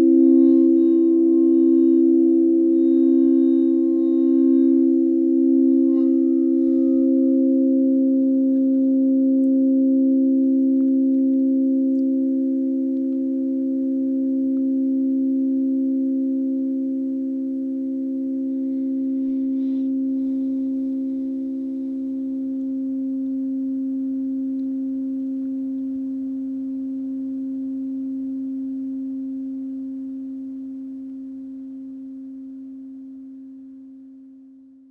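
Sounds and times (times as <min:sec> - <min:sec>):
sustained sound-healing tones drone: 0:00.0 - 0:13.0.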